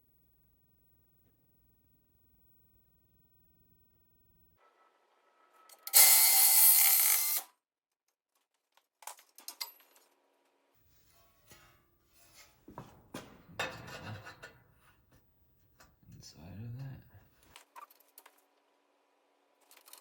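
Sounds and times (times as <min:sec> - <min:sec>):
power tool cutting metal pipe: 0:05.7 - 0:07.5
clatter of handling: 0:19.6 - 0:20.0.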